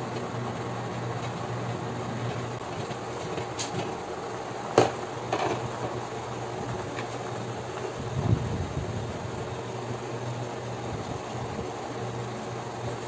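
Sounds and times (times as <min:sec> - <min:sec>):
broth boiling in a pot: 0:00.0 - 0:13.0
steady low hum: 0:00.0 - 0:13.0
small clatter: 0:04.8 - 0:06.0.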